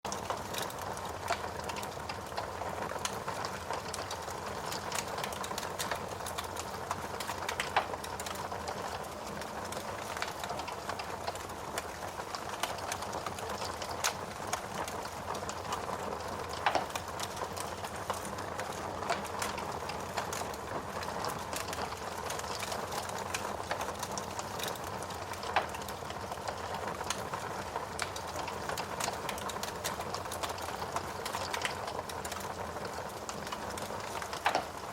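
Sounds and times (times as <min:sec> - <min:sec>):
fire crackling in a fireplace: 0:00.1 - 0:34.9.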